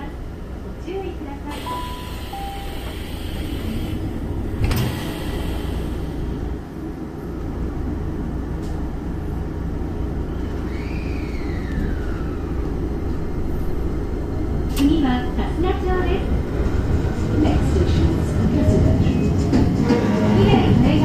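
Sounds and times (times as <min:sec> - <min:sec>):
train car rumbling: 0:00.0 - 0:21.0
train doors shutting thud: 0:01.5 - 0:06.1.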